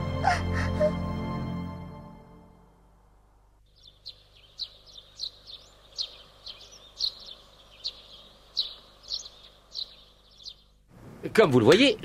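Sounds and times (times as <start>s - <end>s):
faint steady hiss: 2.6s - 12.0s
small birds chirping: 3.5s - 12.0s.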